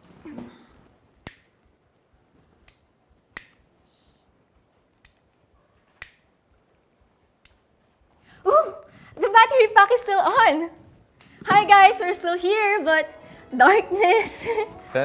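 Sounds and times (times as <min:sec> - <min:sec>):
faint room hiss: 0:00.0 - 0:15.0.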